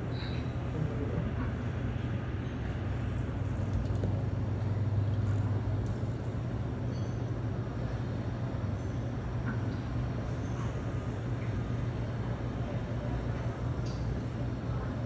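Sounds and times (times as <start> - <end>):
constant hum: 0.0 - 15.0.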